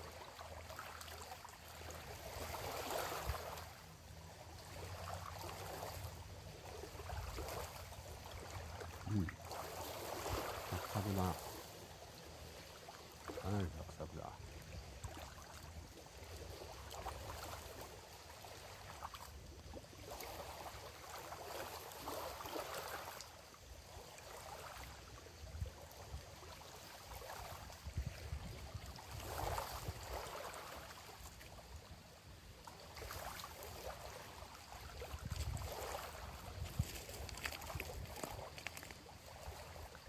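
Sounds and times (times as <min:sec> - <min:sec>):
small waves lapping: 0:00.0 - 0:40.0
wind rumble on microphone: 0:27.3 - 0:30.3, 0:34.8 - 0:40.0.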